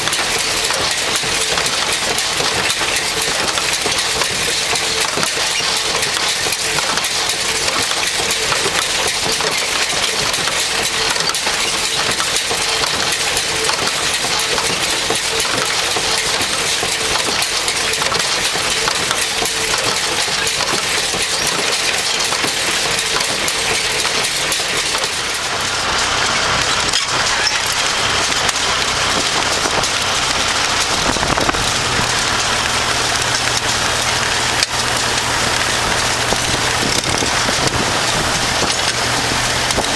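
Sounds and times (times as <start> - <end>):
tractor engine running: 0.0 - 39.9
wind buffeting microphone: 29.0 - 39.9.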